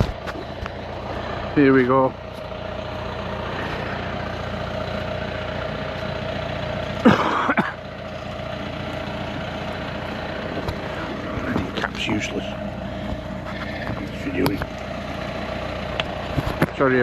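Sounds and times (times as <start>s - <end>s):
vehicle engine running at low revs: 0.0s - 17.0s.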